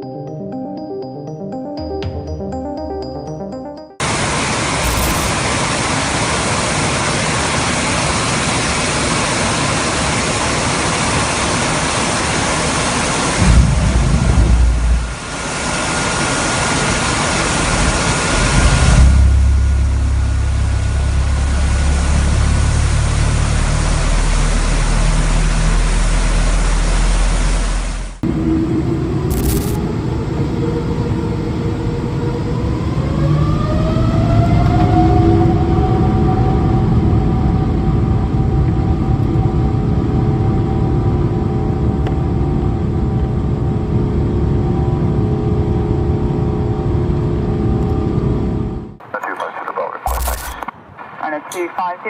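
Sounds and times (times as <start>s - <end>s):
heavy low rumbles: 13.4s - 15.7s, 18.4s - 28.8s.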